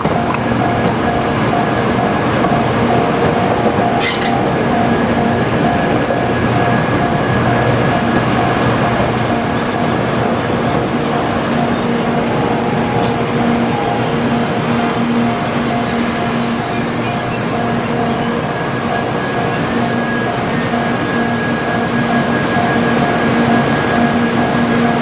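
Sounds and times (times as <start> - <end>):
train rumbling: 0.0 - 25.0
high-pitched wheel squeal: 4.0 - 4.4, 8.8 - 22.9.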